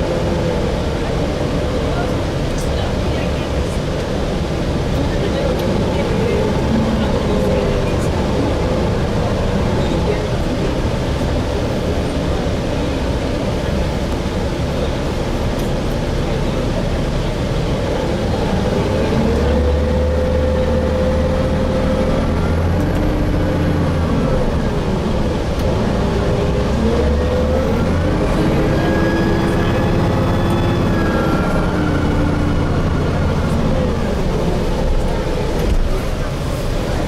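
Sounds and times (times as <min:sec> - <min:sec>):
bus engine drone: 0:00.0 - 0:37.0
transmission whine: 0:10.8 - 0:36.9.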